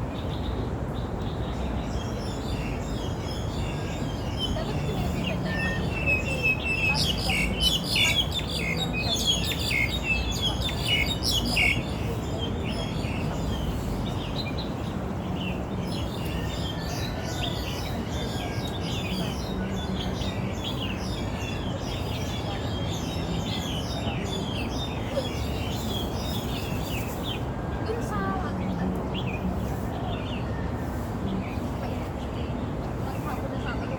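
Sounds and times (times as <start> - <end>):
birds chirping: 1.4 - 27.4.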